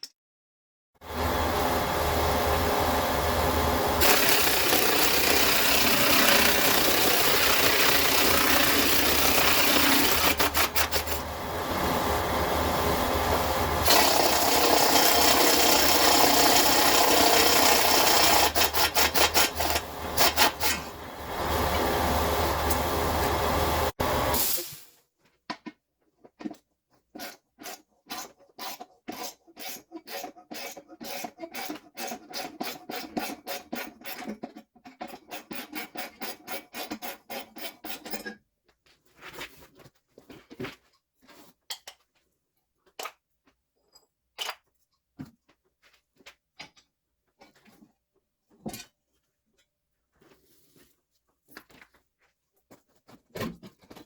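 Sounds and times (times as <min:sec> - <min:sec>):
hand tool rasping on metal pipe: 0:04.0 - 0:11.2, 0:12.8 - 0:20.9.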